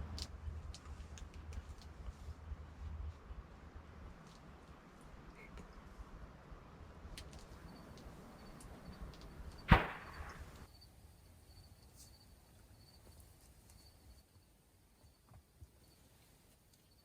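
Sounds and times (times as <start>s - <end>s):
loud sharp crack: 9.6s - 10.7s.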